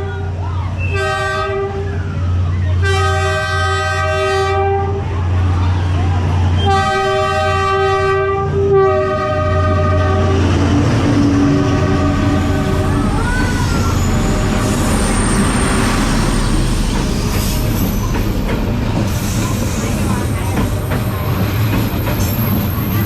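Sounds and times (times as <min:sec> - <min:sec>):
train wheels rumbling past: 0:00.0 - 0:23.0
train horn blasts: 0:00.9 - 0:02.0, 0:02.8 - 0:05.1, 0:06.6 - 0:13.0.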